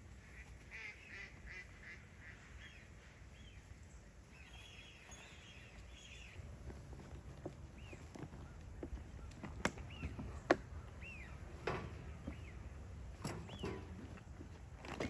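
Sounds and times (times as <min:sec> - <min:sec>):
faint bird calls: 0:07.7 - 0:13.9.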